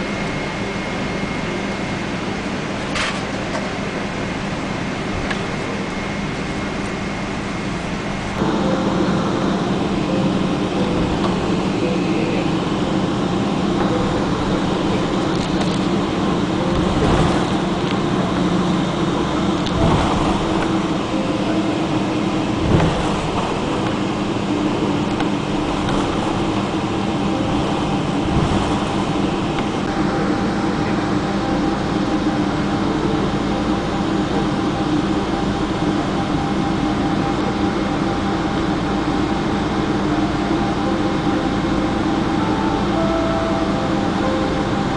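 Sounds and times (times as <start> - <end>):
aircraft engines and air conditioning hum: 0.0 - 44.9.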